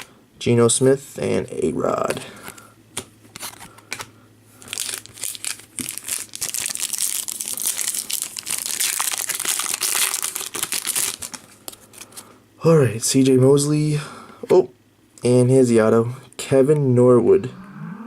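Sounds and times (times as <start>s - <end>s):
foil wrapper tearing and crinkling: 3.4s - 11.8s.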